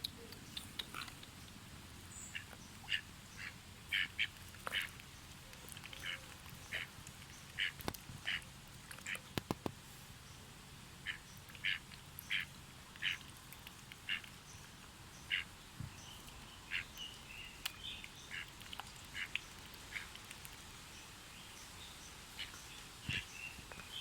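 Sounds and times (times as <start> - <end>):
ducks quacking: 2.3 - 5.0, 7.5 - 8.4, 11.0 - 13.2, 15.3 - 15.5.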